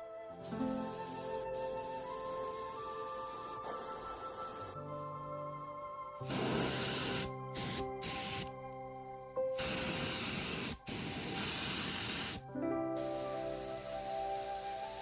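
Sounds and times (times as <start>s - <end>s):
background music: 0.0s - 15.0s
spray hissing in bursts: 0.4s - 4.8s, 6.2s - 8.5s, 9.6s - 12.4s, 13.0s - 15.0s.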